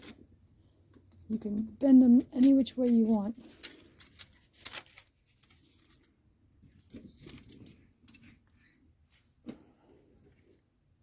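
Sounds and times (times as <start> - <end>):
light metallic jingling: 1.5 - 5.1.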